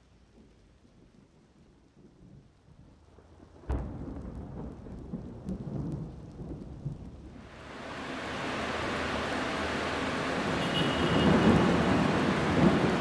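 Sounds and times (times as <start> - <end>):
heavy rain downpour: 0.0 - 13.0
thunderclap rumbling: 3.5 - 13.0.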